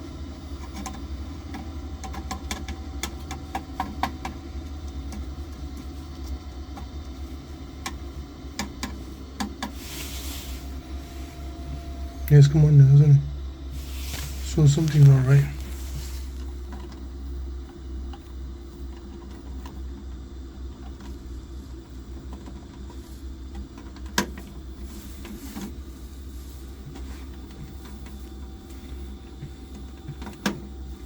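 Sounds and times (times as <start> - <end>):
gas boiler humming: 0.0 - 31.0.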